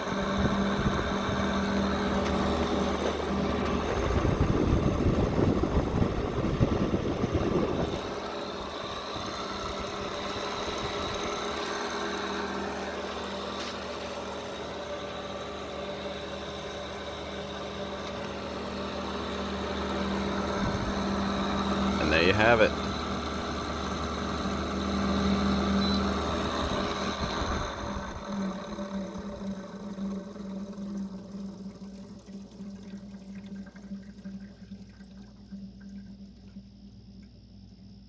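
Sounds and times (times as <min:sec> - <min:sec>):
air conditioner humming: 0:00.0 - 0:38.0
rattling rumble: 0:00.2 - 0:12.0.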